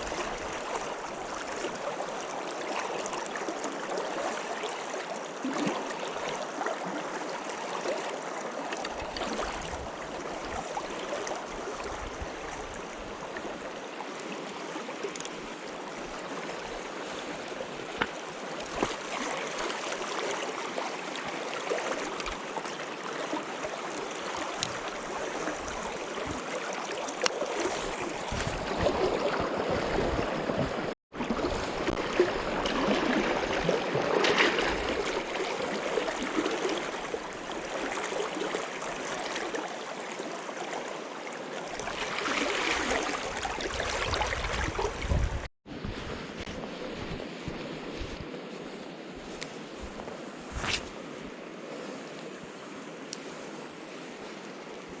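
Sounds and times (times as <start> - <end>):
stream flowing over rocks: 0.0 - 45.3.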